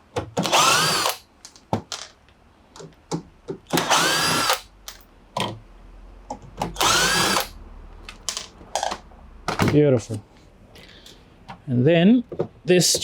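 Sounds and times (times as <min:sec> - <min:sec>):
cordless drill whirring: 0:00.4 - 0:01.2, 0:03.7 - 0:04.7, 0:06.8 - 0:07.6.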